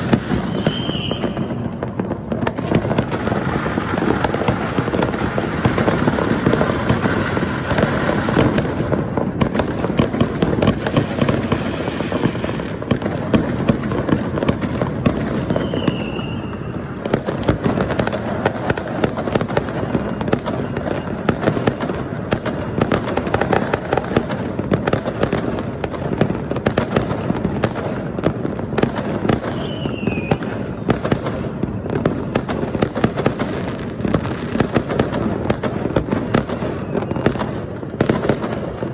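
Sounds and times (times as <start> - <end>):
falling firework whistles: 0.0 - 8.7, 10.8 - 12.7, 15.1 - 17.6, 18.4 - 21.9, 29.2 - 31.2, 36.3 - 38.6
firecrackers crackling: 0.0 - 38.9.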